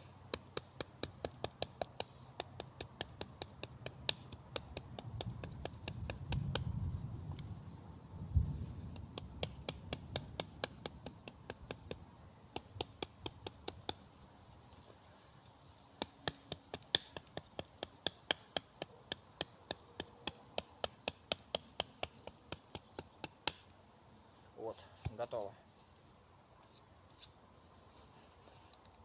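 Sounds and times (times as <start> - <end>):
blade striking wood: 0.3 - 6.7, 8.9 - 14.0, 16.0 - 23.7.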